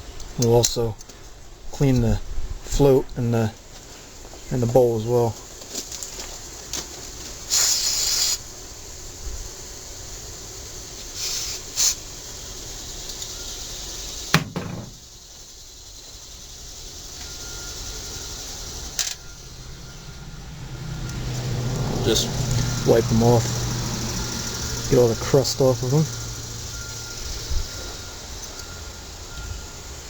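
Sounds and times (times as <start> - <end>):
aerosol spray hissing bursts: 7.4 - 8.5, 9.5 - 14.4.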